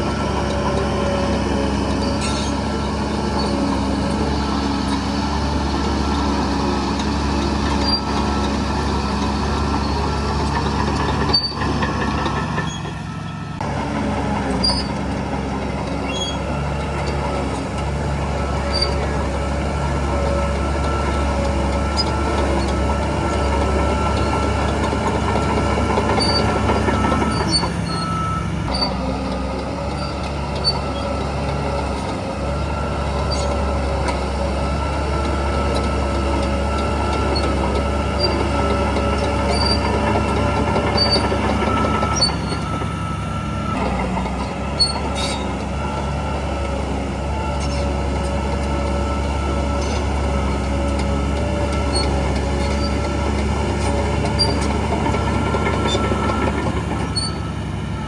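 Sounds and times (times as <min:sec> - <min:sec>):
heavy diesel machinery running: 0:00.0 - 0:58.0
metal clanks: 0:02.1 - 0:02.7.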